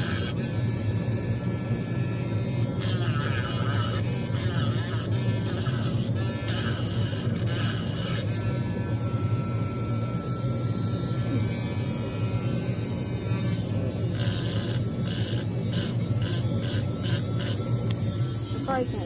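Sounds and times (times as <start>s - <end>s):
motor buzzing drone: 0.0s - 19.0s.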